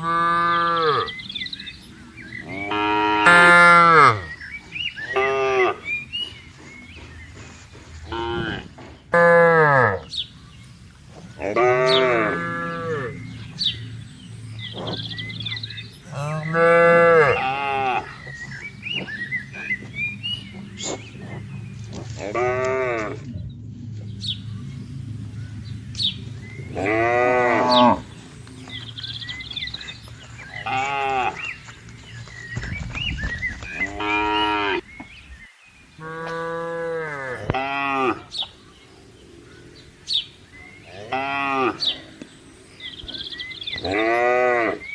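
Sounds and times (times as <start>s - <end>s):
cattle mooing: 0.0s - 1.2s, 2.5s - 4.3s, 5.0s - 6.0s, 8.0s - 10.1s, 11.4s - 13.8s, 14.7s - 23.4s, 26.6s - 28.2s, 30.5s - 31.6s, 36.0s - 38.3s, 40.7s - 42.2s, 43.1s - 44.9s
steady low hum: 0.0s - 44.9s.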